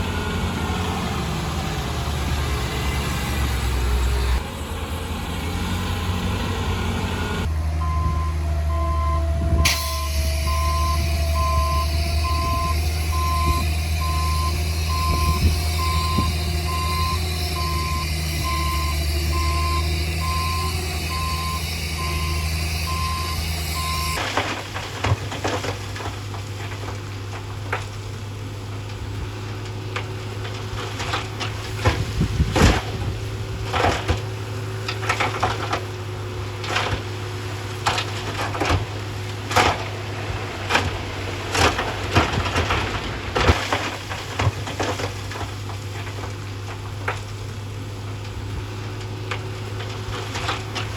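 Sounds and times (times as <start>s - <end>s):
diesel engine running: 0.0s - 50.9s
reversing alarm beeping: 7.0s - 24.2s
knocks and clatters: 22.8s - 28.1s, 29.6s - 37.2s, 37.8s - 47.4s, 49.0s - 50.9s.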